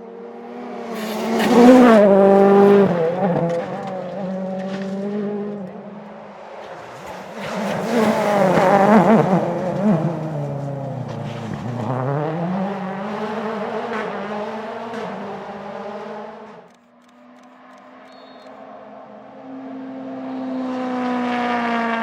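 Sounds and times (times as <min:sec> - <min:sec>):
rally car engine passing: 0:00.0 - 0:22.0.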